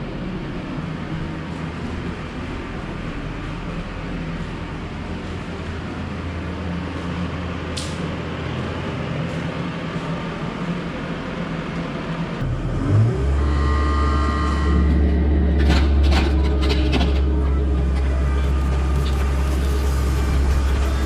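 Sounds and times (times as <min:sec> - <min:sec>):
excavator diesel engine: 0:00.0 - 0:21.0
thin hydraulic whine: 0:12.4 - 0:21.0.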